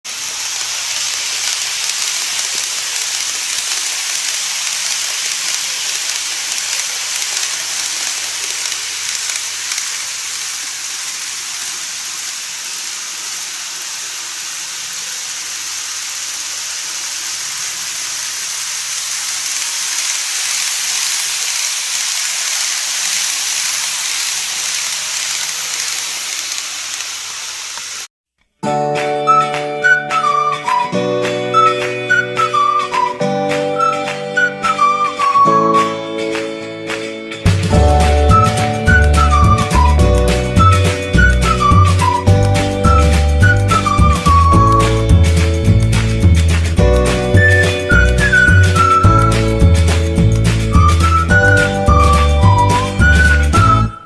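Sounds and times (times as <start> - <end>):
model train rattling on track: 0.1 - 28.1, 37.5 - 53.9
music: 28.6 - 54.0.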